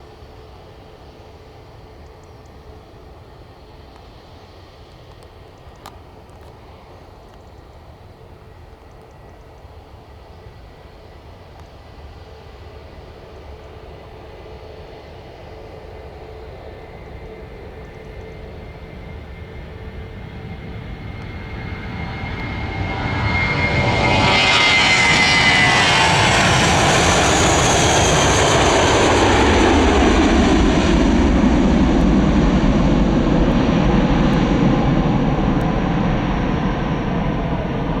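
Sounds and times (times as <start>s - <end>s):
jet engines at takeoff power: 0.0s - 38.0s
jet passing with falling whine: 16.4s - 38.0s.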